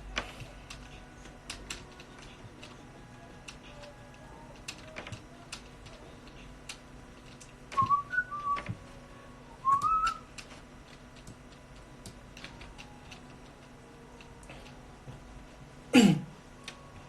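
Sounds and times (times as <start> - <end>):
person whistling: 7.8 - 8.6, 9.6 - 10.2.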